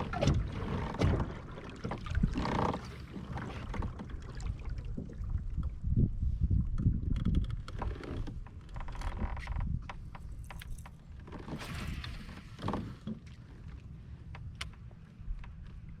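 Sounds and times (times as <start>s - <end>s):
gear knocking and clicking on kayak: 0.0s - 4.2s, 6.7s - 11.6s.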